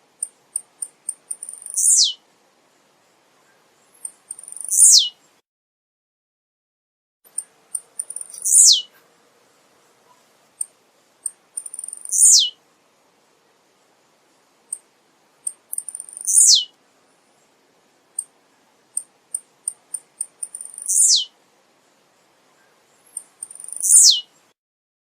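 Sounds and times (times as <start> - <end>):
bird buzzy song: 0.0 - 5.4, 7.3 - 24.6
high bird chip notes: 7.3 - 9.0, 11.3 - 12.6, 15.5 - 16.7, 19.0 - 21.3, 23.1 - 24.3.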